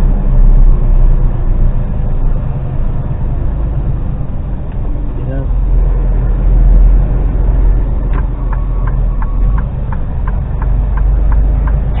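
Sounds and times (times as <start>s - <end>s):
lorry diesel engine droning: 0.0s - 12.0s
regular clicking: 8.1s - 12.0s.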